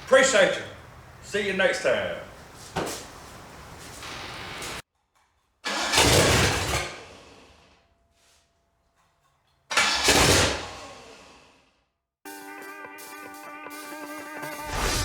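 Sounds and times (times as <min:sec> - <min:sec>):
engine revving: 0:14.0 - 0:15.0.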